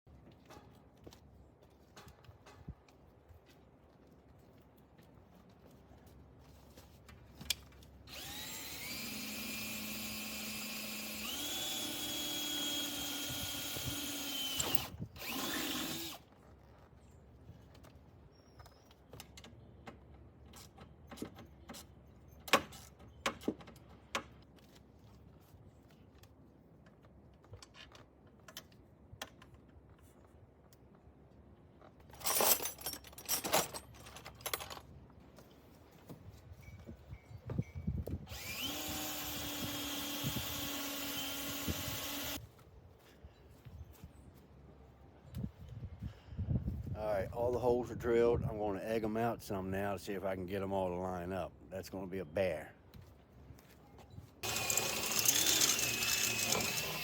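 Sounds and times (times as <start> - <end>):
electric drill boring metal: 8.1 - 16.2, 38.3 - 42.4, 54.4 - 57.0.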